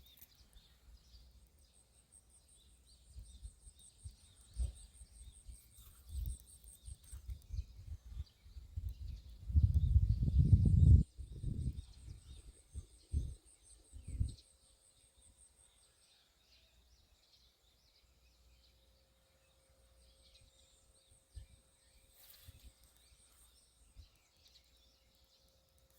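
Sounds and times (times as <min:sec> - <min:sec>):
faint birds chirping: 0:00.0 - 0:25.9.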